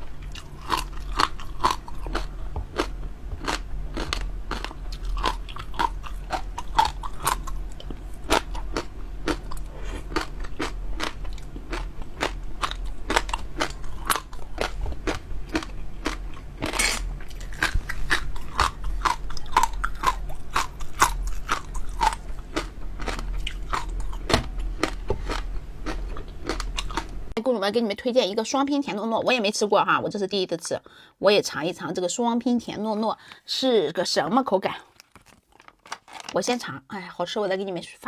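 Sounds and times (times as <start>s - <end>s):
crunching and chewing food: 0.0s - 27.3s, 34.7s - 36.4s.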